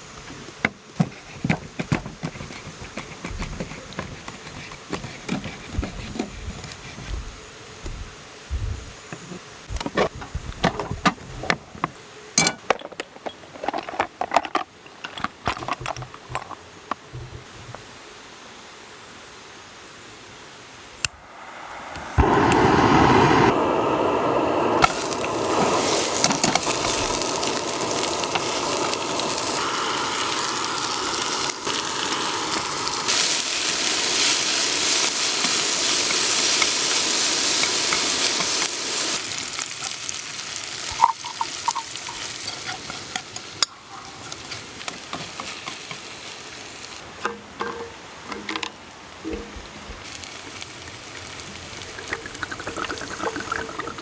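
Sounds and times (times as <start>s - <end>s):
food sizzling in a pan: 21.2s - 47.2s, 49.2s - 54.0s.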